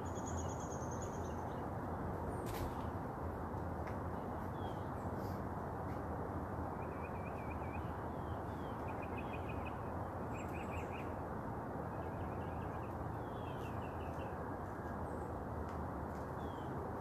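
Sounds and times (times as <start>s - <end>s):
small birds chirping: 0.0s - 1.8s, 6.8s - 11.2s, 11.8s - 15.4s.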